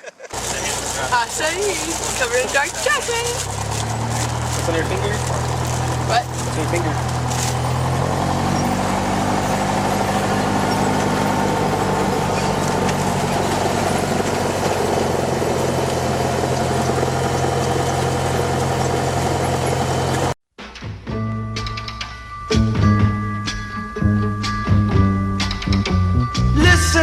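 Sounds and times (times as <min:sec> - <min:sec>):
propeller airplane engine droning: 0:00.3 - 0:20.4.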